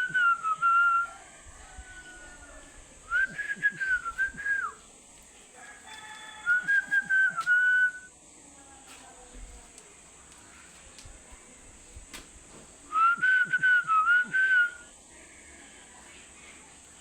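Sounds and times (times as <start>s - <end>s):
person whistling: 3.1s - 4.8s, 6.5s - 8.1s, 12.9s - 14.8s.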